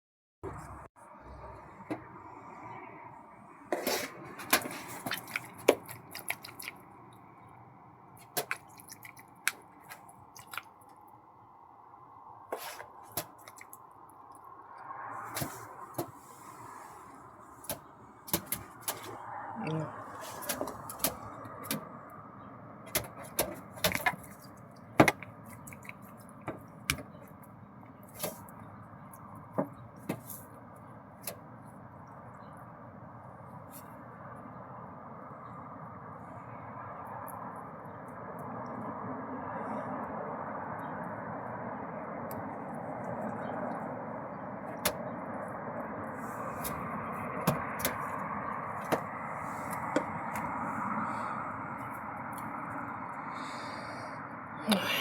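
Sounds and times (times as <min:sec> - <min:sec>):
bird pecking on glass: 0:17.6 - 0:19.2
bird pecking on window glass: 0:17.6 - 0:19.2, 0:20.3 - 0:21.9, 0:22.9 - 0:27.4, 0:46.4 - 0:50.6.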